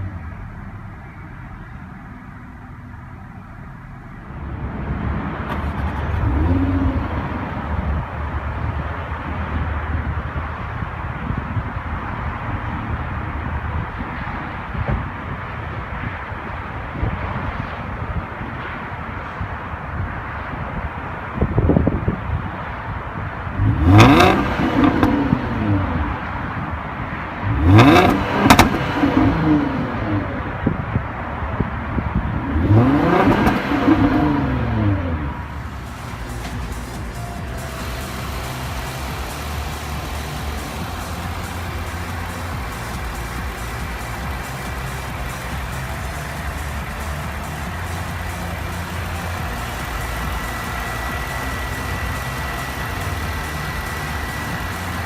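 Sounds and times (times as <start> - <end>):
car engine: 0.0 - 55.0
road noise: 0.0 - 55.0
engine pops: 35.5 - 55.0.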